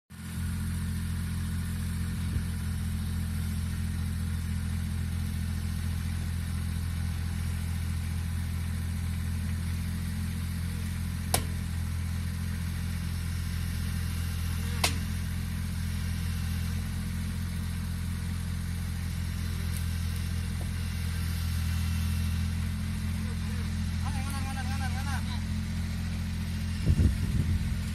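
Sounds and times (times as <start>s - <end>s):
harvester diesel engine humming: 0.1s - 27.9s
sharp knocks: 11.3s - 11.7s, 14.8s - 15.1s.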